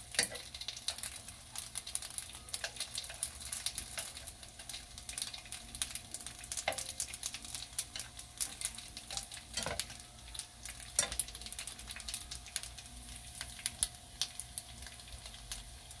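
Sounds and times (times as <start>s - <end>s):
dumplings sizzling in a pan: 0.0s - 16.0s.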